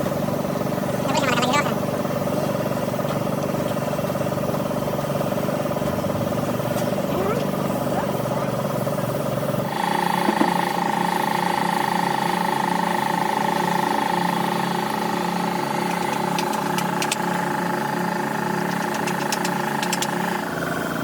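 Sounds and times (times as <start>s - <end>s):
machine humming: 0.0s - 21.0s
sharp clicks: 15.8s - 17.3s, 18.7s - 20.2s.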